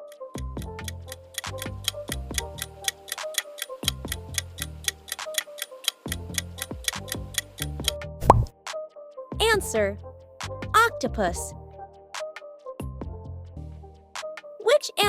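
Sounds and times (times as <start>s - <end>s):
clock ticking: 0.0s - 8.0s
light background music: 0.0s - 15.0s.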